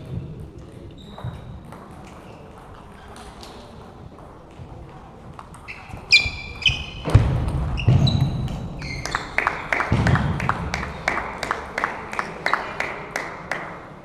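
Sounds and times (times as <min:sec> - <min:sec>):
voices in a hall: 0:00.0 - 0:14.0
shoe squeaks on floor: 0:00.9 - 0:03.1, 0:05.6 - 0:09.5.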